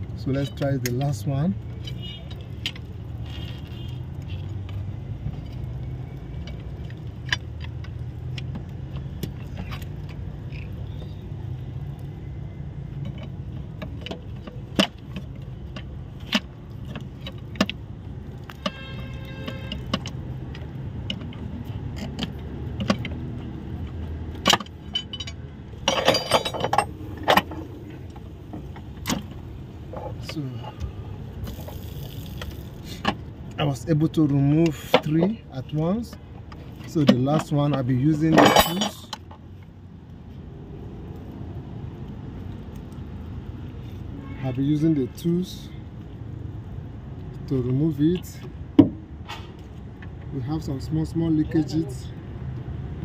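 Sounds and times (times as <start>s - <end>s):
rattling clinks: 24.4s - 27.7s, 37.1s - 39.1s.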